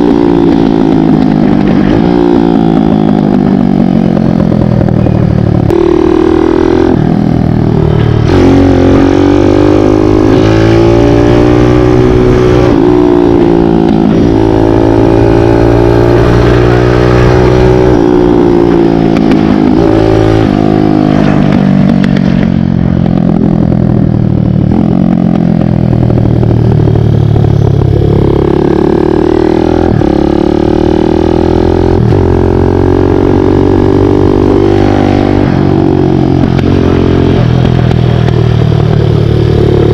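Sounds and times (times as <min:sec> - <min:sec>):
dirt bike engine revving: 0:04.8 - 0:21.5.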